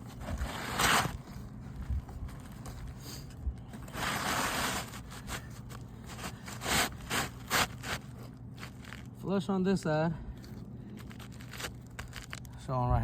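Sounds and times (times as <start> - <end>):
roof shingles scraping: 0.0 - 1.4, 3.8 - 9.1, 11.0 - 12.4.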